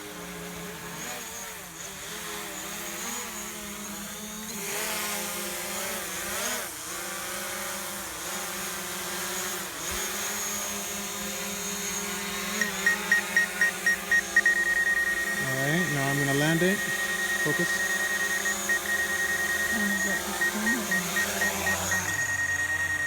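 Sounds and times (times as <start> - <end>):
drone propellers buzzing: 9.9 - 23.0.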